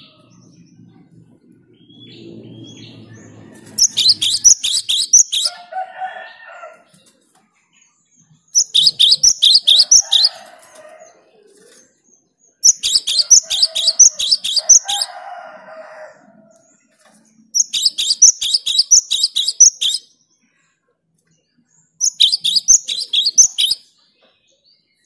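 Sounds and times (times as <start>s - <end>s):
bird singing sharp high notes: 22.0s - 23.8s.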